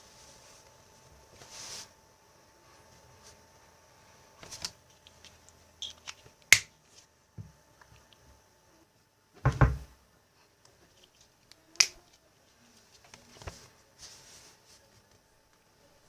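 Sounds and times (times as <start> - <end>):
household objects knocking: 9.4 - 9.9.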